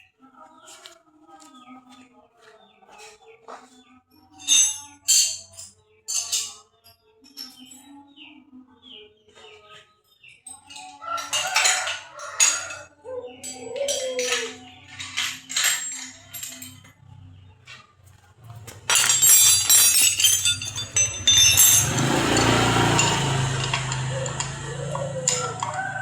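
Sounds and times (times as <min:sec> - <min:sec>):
metal parts clinking: 0:04.4 - 0:07.8, 0:10.4 - 0:17.0, 0:18.6 - 0:24.6.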